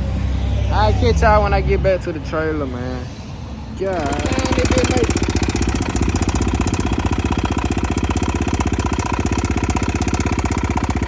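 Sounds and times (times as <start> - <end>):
person talking: 3.8 - 5.2
dirt bike engine running: 3.8 - 11.0.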